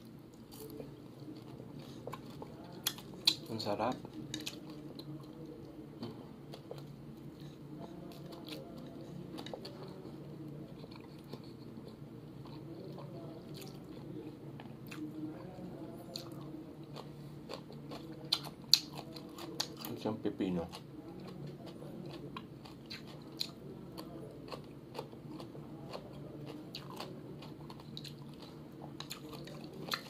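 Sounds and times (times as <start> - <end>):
steady low hum: 0.0 - 30.0
chewing and biting food: 0.4 - 5.4, 10.7 - 15.0, 16.1 - 30.0.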